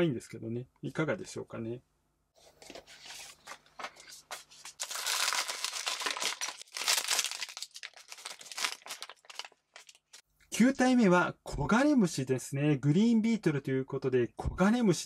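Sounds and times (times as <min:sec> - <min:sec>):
foil bag crinkling and tearing: 0:03.1 - 0:10.2.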